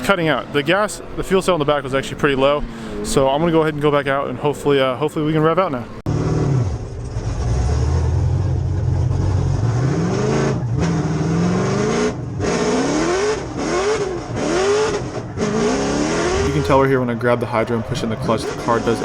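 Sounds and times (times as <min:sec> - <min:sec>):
car engine revving: 0:06.0 - 0:19.0.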